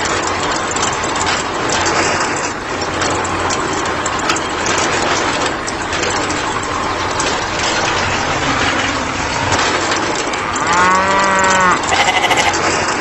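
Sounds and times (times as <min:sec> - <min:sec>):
steady background noise: 0:00.0 - 0:13.0
cow mooing: 0:08.2 - 0:12.7
quavering cow call: 0:08.3 - 0:12.9.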